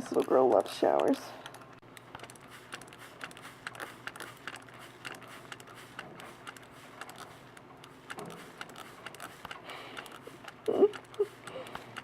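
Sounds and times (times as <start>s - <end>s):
spray bottle trigger clicks: 2.1s - 10.5s.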